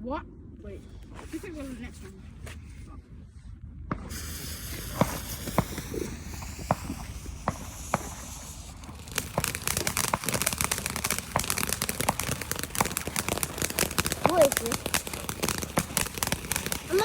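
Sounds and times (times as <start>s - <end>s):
firework crackling: 3.9s - 17.0s
firework fountain hissing: 3.9s - 17.0s
firework pops: 3.9s - 17.0s.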